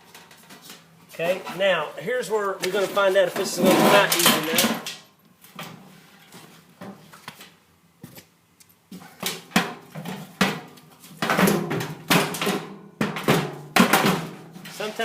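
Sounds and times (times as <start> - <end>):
metal knocks and rattles: 3.4 - 5.0.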